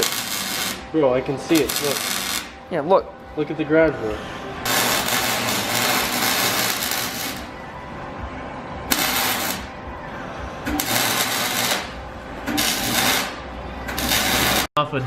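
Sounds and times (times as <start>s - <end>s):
welder crackling and hissing: 0.0s - 0.9s, 1.5s - 2.6s, 4.7s - 7.5s, 8.9s - 9.7s, 10.7s - 14.7s.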